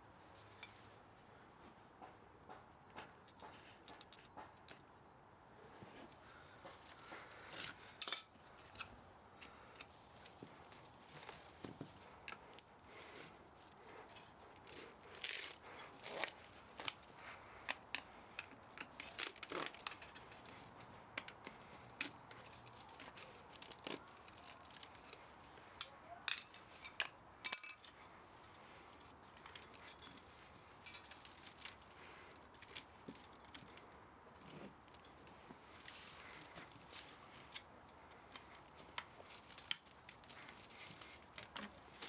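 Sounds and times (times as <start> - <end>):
hand tools clicking on metal: 13.6 - 25.2.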